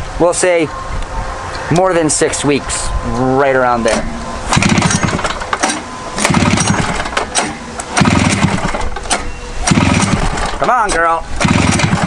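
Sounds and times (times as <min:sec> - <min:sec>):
snowmobile engine cranking: 0:03.9 - 0:12.0.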